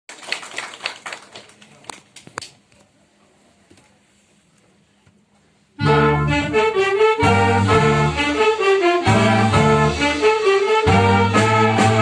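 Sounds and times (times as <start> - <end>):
brass band playing: 5.8 - 12.0.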